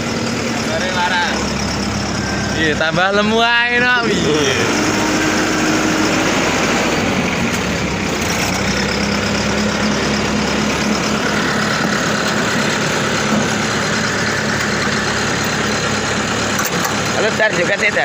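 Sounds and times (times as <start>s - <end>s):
diesel engine humming: 0.0s - 18.0s.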